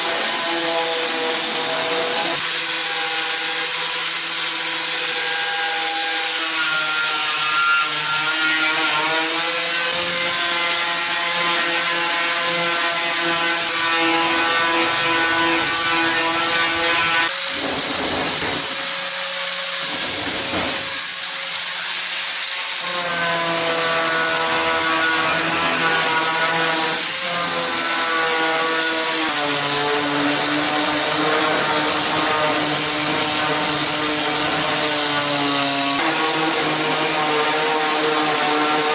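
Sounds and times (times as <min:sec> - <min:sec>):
power tool whining: 0:09.2 - 0:38.9.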